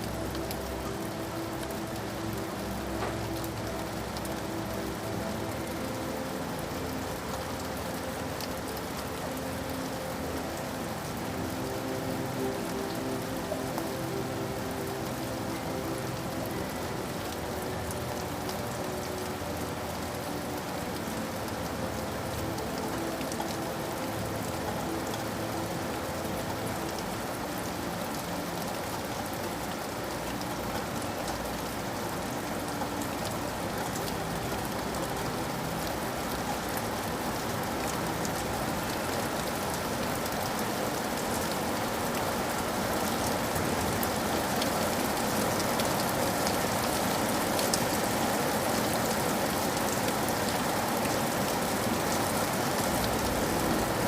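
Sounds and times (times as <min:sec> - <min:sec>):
rain drops ticking on a surface: 0:00.0 - 0:54.0.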